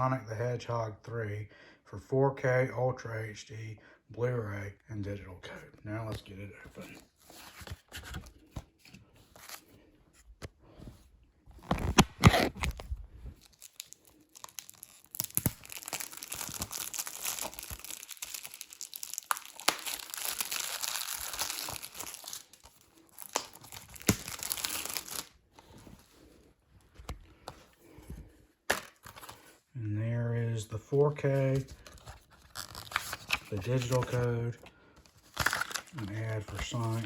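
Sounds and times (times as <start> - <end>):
plastic wrap tearing and crinkling: 11.6 - 25.8, 31.8 - 34.5, 35.2 - 37.0.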